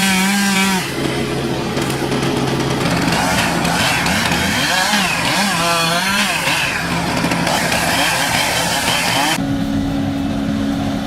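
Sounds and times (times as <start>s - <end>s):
truck engine revving hard: 0.0s - 11.0s.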